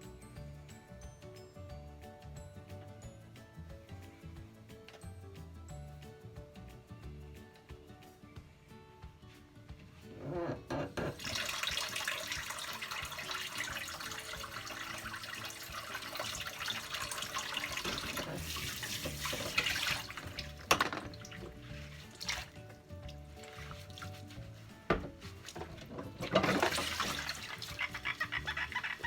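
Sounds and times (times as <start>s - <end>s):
tap running into sink: 10.7s - 24.1s, 24.8s - 27.7s.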